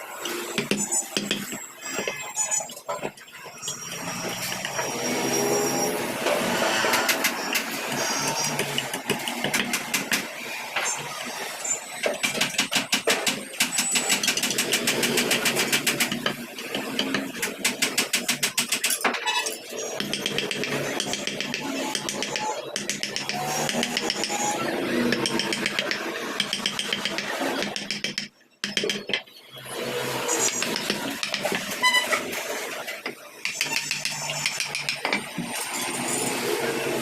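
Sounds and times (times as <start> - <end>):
small motorised carving tool: 3.6 - 18.9, 19.7 - 32.1, 33.4 - 37.0
fast repeated knocks: 20.0 - 24.4, 25.1 - 29.2, 30.4 - 31.7.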